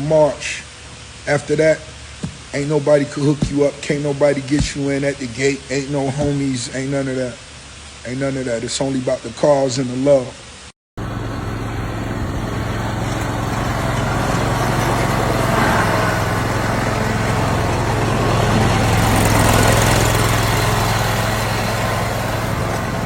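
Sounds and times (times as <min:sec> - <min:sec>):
vehicle engine humming: 0:11.0 - 0:23.0.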